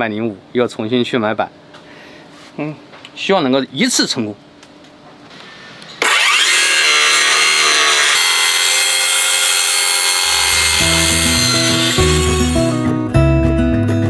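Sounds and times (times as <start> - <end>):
circular saw cutting board: 6.0 - 12.9.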